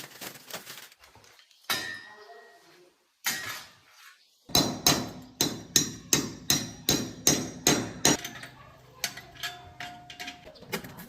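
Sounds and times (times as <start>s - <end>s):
hammer blows ringing: 4.5s - 8.2s.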